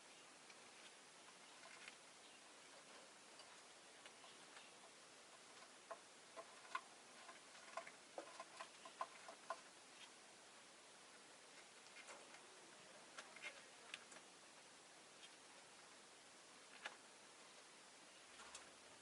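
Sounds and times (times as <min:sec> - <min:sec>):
bird clicking and tapping in cage: 0:05.4 - 0:09.7.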